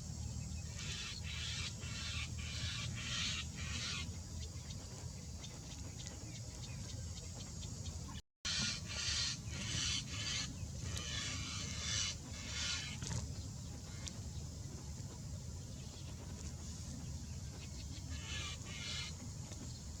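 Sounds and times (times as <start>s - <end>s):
low steady rumble: 0.0s - 20.0s
birds squawking: 0.7s - 4.2s, 8.5s - 13.2s, 17.9s - 19.2s.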